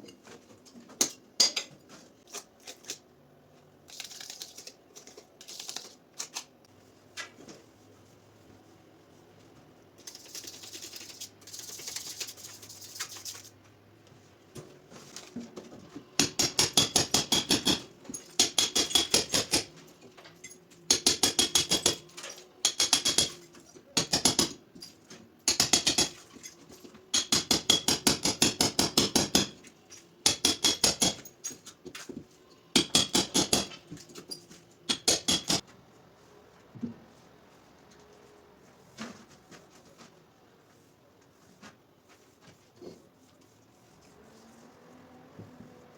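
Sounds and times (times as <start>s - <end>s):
hand tool clicking on tile: 18.4s - 19.6s, 20.9s - 22.0s, 22.7s - 23.4s, 25.5s - 26.2s, 30.3s - 31.2s, 34.9s - 35.6s.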